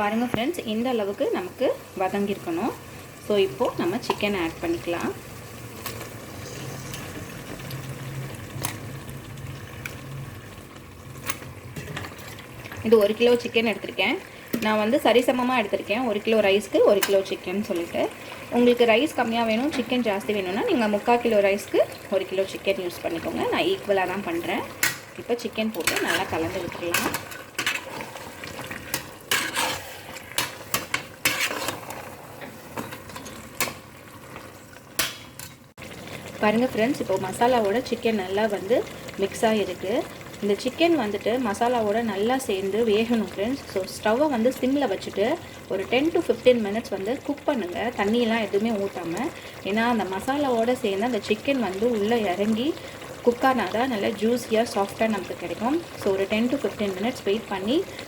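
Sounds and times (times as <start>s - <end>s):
faint sizzle: 0.0s - 58.0s
sauce bubbling in a pot: 0.1s - 58.0s
spoon scraping and knocking pot: 25.8s - 27.9s, 28.8s - 33.7s.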